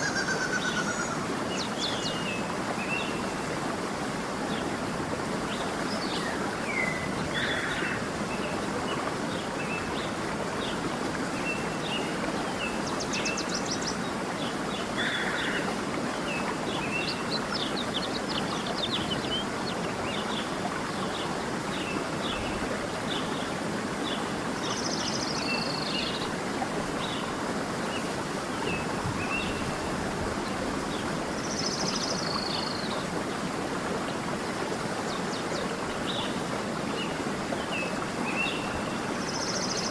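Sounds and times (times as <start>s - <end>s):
running water rushing: 0.0s - 39.9s
birds chirping and trilling: 5.3s - 10.7s.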